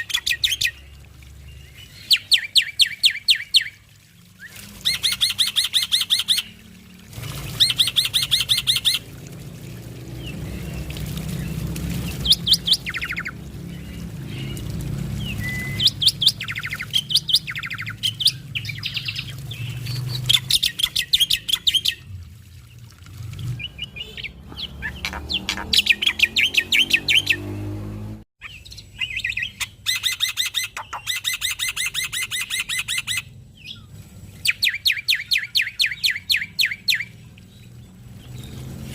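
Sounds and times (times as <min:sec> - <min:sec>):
starling chattering song: 0:23.6 - 0:27.4.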